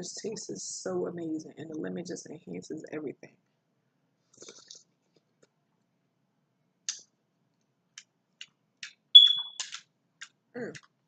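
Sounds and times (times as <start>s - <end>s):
high-pitched squeak: 9.2s - 9.7s.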